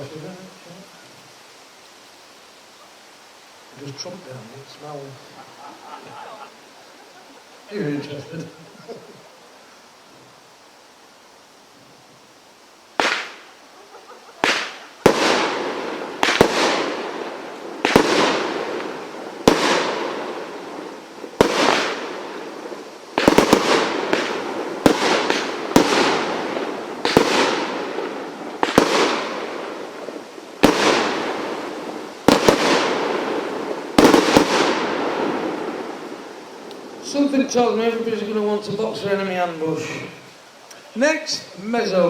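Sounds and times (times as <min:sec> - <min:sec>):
firework bangs: 0:12.9 - 0:40.2.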